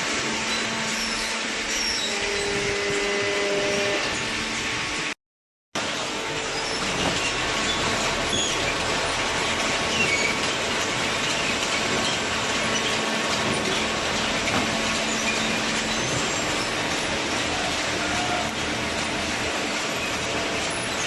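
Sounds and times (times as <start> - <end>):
high machine squeaks: 0.4 - 4.6, 6.3 - 21.0
baling machinery clattering: 5.8 - 21.0.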